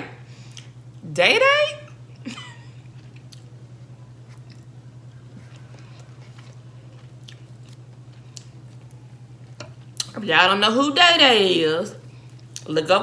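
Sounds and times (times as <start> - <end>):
low electrical hum: 0.0 - 13.0
person chewing: 2.8 - 3.6, 4.2 - 10.1.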